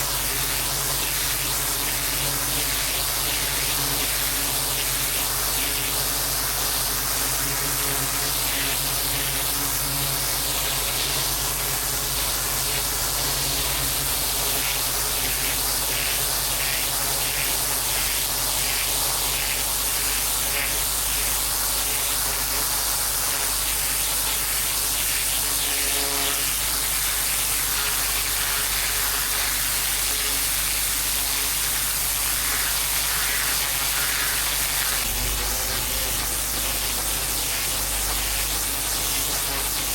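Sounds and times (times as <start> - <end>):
pressure washer machine hum: 26.4 - 39.2
water spray hitting paving: 26.9 - 36.9.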